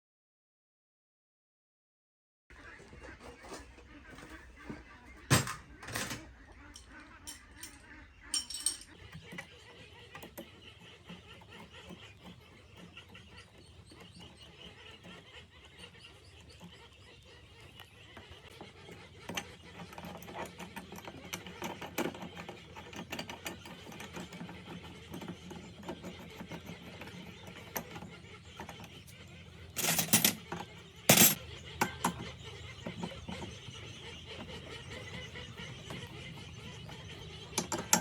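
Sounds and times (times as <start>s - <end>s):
clicks and taps on metal parts: 5.3s - 9.5s, 18.2s - 29.1s, 29.7s - 33.5s, 37.4s - 38.0s.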